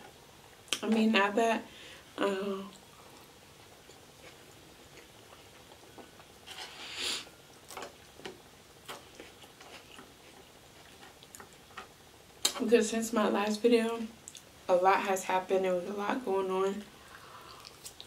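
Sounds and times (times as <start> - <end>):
quiet chewing: 2.7 - 12.6, 14.2 - 14.5, 17.0 - 18.0.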